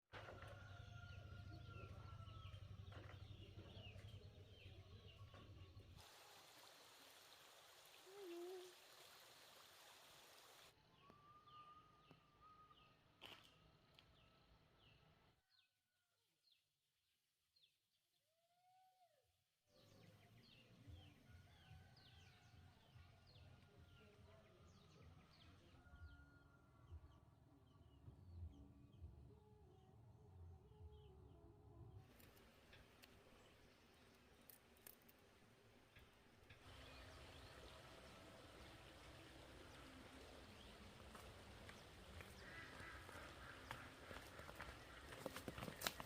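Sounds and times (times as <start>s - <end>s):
background hiss: 6.0s - 10.7s
small birds chirping: 35.9s - 46.0s.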